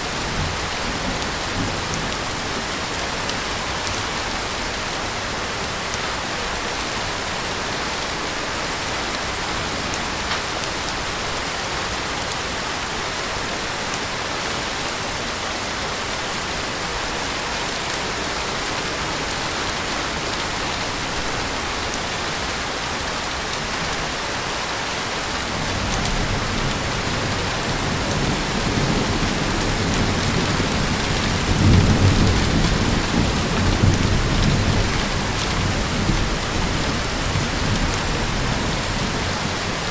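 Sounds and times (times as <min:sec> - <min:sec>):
heavy rain: 0:00.0 - 0:39.9
thunder rumbling: 0:25.4 - 0:39.9.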